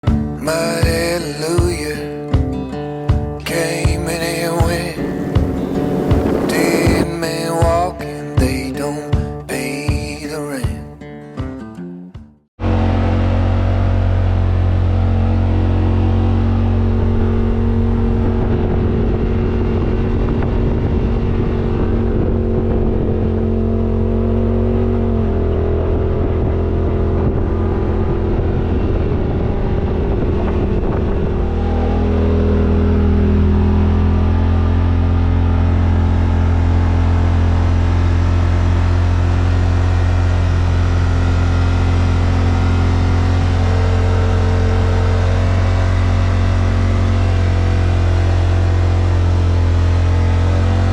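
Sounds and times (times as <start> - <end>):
utility vehicle engine running: 0.0 - 9.4, 12.6 - 50.9.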